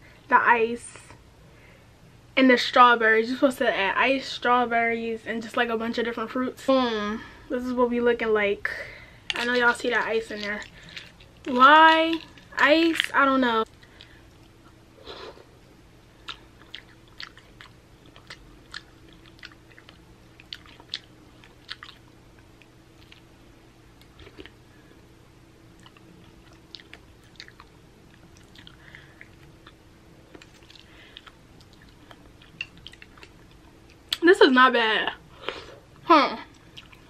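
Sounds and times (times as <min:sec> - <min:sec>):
person chewing fruit: 0:09.3 - 0:13.1, 0:13.7 - 0:24.6, 0:25.8 - 0:34.2, 0:36.5 - 0:37.0.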